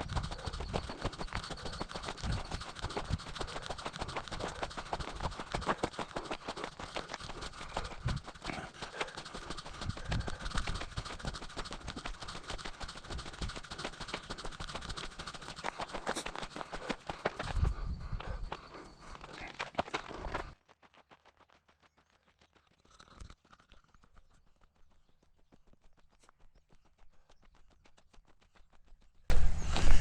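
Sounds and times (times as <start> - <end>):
footsteps on gravel trail: 0.0 - 22.4.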